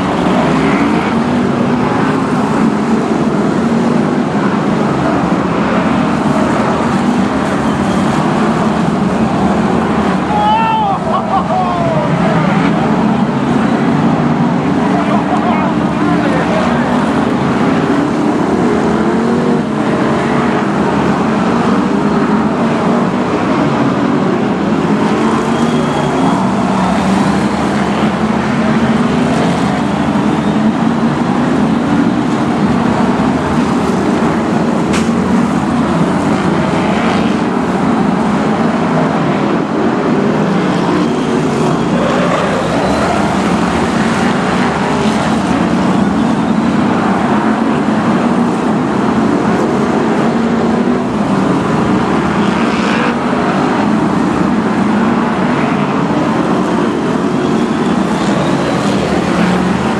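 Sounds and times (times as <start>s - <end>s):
racing car engines: 0.0s - 59.9s.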